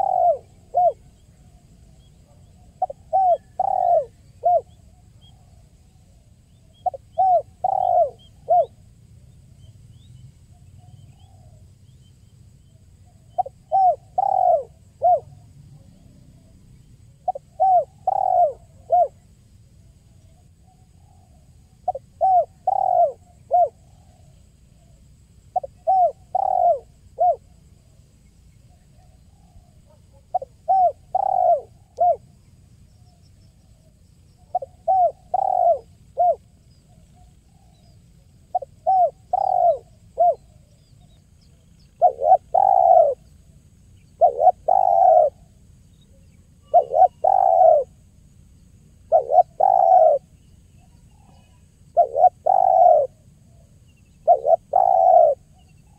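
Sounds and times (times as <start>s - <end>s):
dove cooing: 0.0s - 8.8s, 13.1s - 16.6s, 17.2s - 19.3s, 20.2s - 27.9s, 28.7s - 32.3s, 33.8s - 48.0s, 49.0s - 55.9s.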